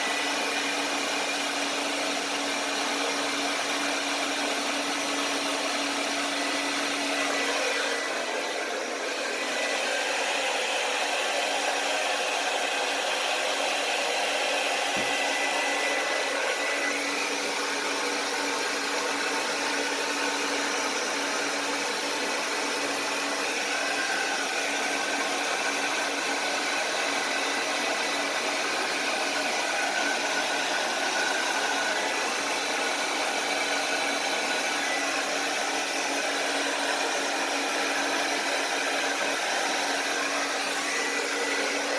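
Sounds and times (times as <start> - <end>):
blow dryer running: 0.0 - 41.9.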